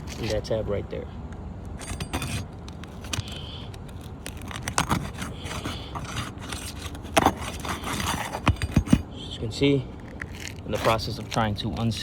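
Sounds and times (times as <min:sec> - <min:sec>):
shingle scraping: 0:00.0 - 0:00.5, 0:01.7 - 0:09.2, 0:09.9 - 0:12.0
shingle crackling and tearing: 0:00.0 - 0:00.6, 0:01.6 - 0:09.1, 0:09.9 - 0:12.0.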